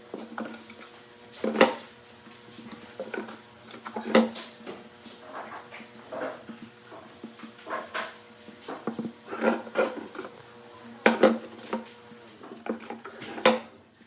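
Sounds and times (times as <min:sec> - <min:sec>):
wood scraping and rubbing: 0:05.0 - 0:10.4, 0:11.2 - 0:13.6.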